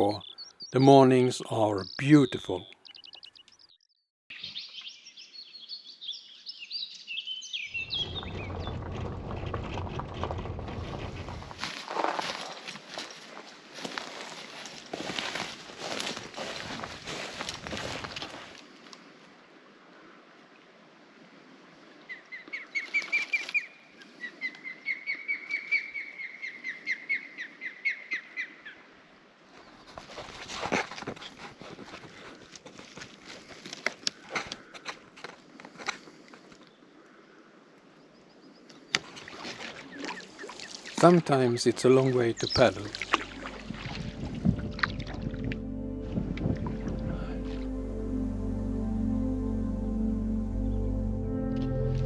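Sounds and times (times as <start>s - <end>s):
songbirds singing: 0.0s - 8.8s, 39.9s - 43.5s
low rushing noise: 42.9s - 52.0s.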